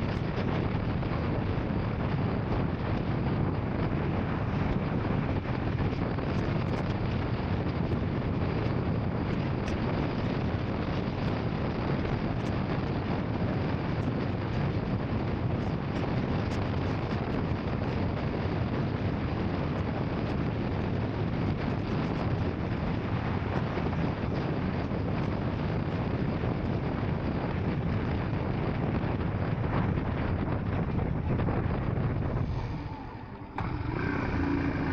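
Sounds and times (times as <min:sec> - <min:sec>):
wind rushing on microphone: 0:00.0 - 0:34.9
motorcycle engine: 0:32.3 - 0:34.9.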